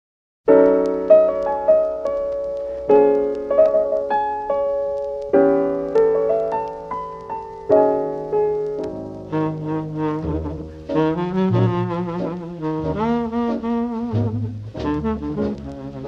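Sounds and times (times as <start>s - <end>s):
piano chords and melody: 0.5s - 16.0s.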